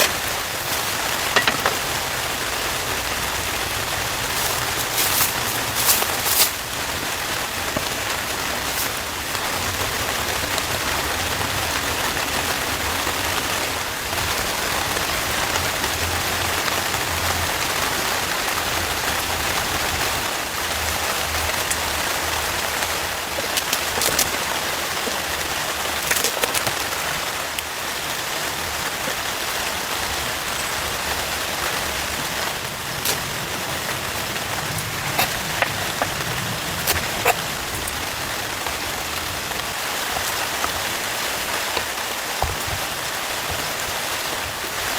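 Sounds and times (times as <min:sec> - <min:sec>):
close raindrop hits: 0:00.0 - 0:13.5
heavy rain falling: 0:00.0 - 0:44.9.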